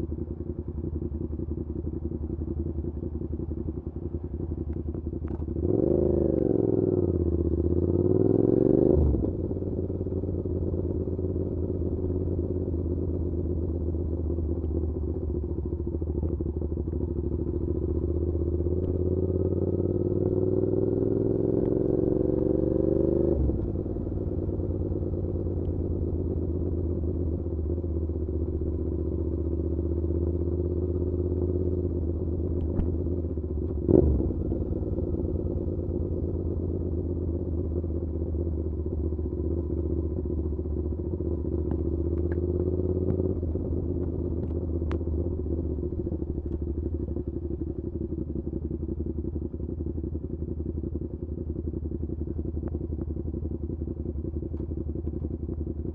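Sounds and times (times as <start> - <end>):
motorcycle engine revving: 5.3 - 12.8, 13.4 - 48.4.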